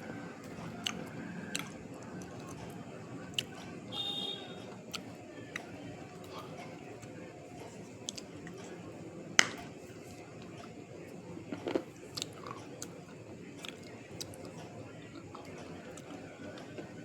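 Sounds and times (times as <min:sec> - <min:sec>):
person chewing crunchy food: 0:00.4 - 0:03.6, 0:11.5 - 0:16.8.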